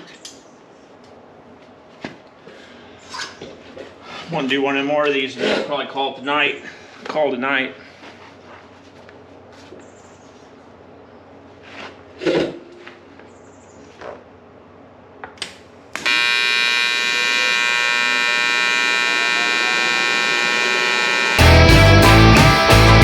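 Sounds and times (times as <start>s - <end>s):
welding arc buzzing: 15.9s - 23.0s
guitar music: 19.2s - 23.0s.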